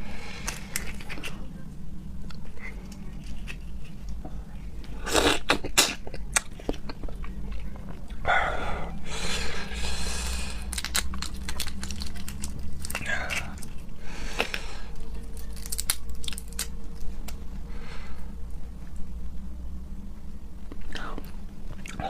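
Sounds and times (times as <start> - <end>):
wet chewing sounds: 10.3 - 17.4.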